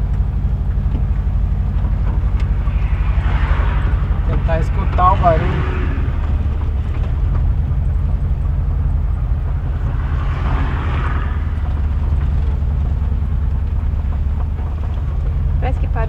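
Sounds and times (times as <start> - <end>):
van engine and road drone: 0.0 - 16.0
rushing swell: 0.7 - 13.5.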